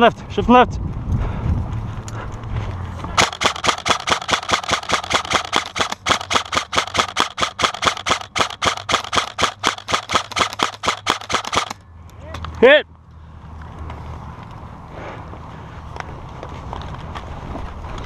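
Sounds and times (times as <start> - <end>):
airsoft gun firing: 3.2 - 11.8.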